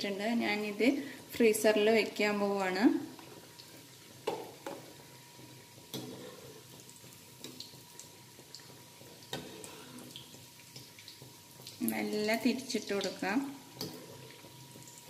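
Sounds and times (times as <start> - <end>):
cutlets sizzling in oil: 0.0 - 15.0.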